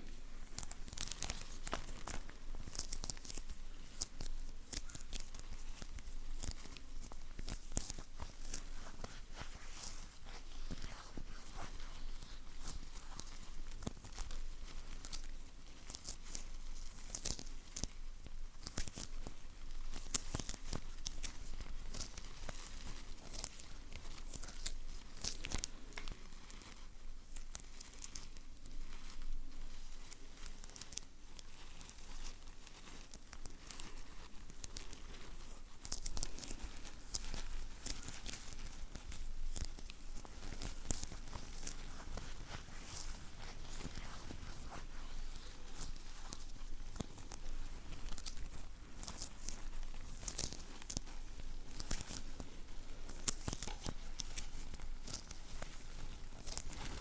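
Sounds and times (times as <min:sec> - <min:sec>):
crinkling: 0:00.0 - 0:57.0.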